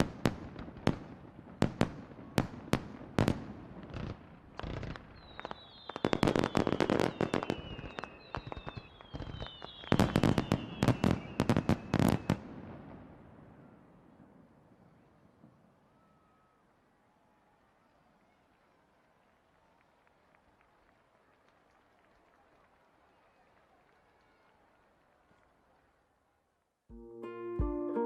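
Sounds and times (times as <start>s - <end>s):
firework whistles falling in pitch: 5.2s - 12.4s.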